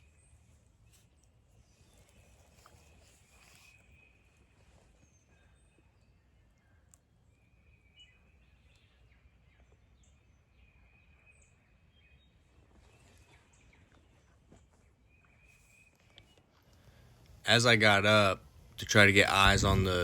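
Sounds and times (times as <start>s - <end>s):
faint wind rumble: 16.9s - 20.0s.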